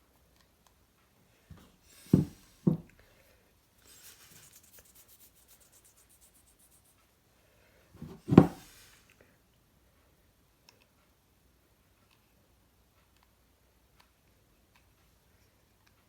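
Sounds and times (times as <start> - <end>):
dull knocks on pottery: 1.5 - 3.0, 8.0 - 8.7
soft scraping of paste: 3.8 - 7.1.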